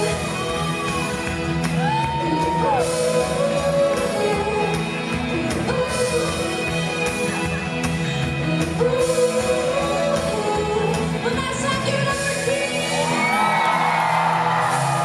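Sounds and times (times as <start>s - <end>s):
live pop-rock band playing: 0.0s - 15.0s.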